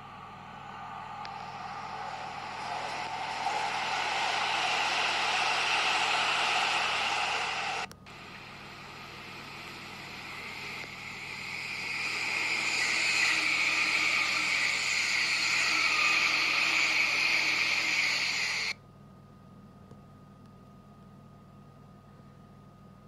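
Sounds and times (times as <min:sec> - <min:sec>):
express train passing at speed: 0:00.0 - 0:18.7.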